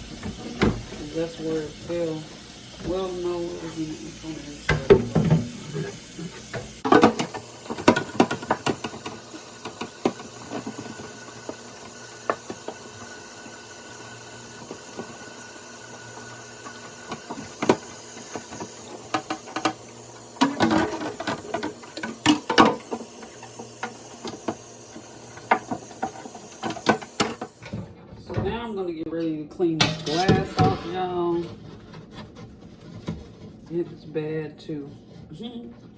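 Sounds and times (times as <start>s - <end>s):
refrigerator parts rattling: 29.7s - 33.9s.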